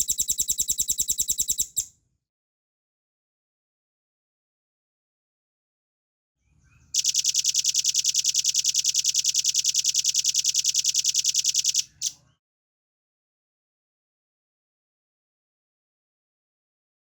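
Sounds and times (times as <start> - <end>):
bird singing fast high trill: 0.0 - 1.8.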